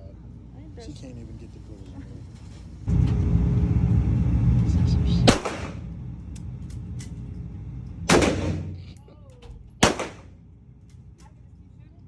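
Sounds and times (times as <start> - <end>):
gunshots with reverberation: 5.3 - 5.9, 8.1 - 8.9, 9.7 - 10.4.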